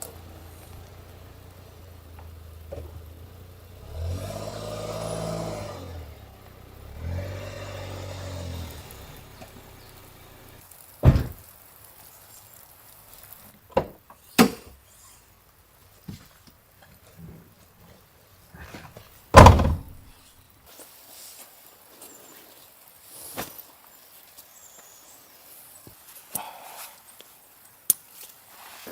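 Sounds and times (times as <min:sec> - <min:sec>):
motor engine revving: 0:00.0 - 0:10.6
sharp thuds: 0:11.0 - 0:11.4, 0:19.4 - 0:20.1.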